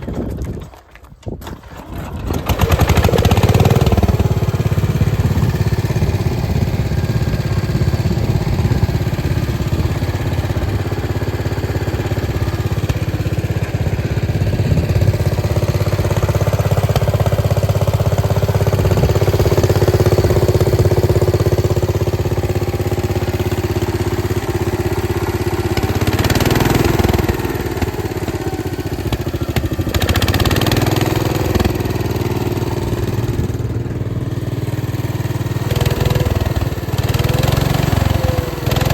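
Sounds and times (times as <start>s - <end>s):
lawn tractor engine running: 0.0s - 38.9s.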